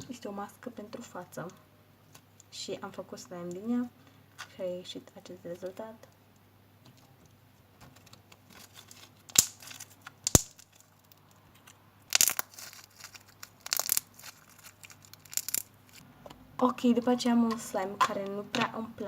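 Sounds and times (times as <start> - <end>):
hand handling noise: 5.4 - 16.0
slime crackling and popping: 8.8 - 11.2, 12.1 - 15.8.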